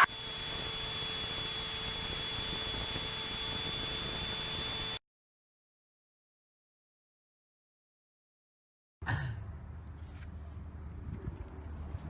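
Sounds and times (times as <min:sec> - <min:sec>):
thin high whine: 0:00.0 - 0:05.0.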